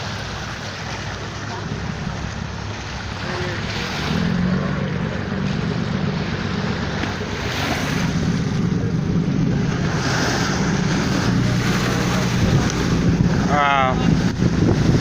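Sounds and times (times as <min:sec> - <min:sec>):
boat motor hum: 0:00.0 - 0:15.0
water rushing: 0:00.0 - 0:15.0
wind on the microphone: 0:06.4 - 0:15.0.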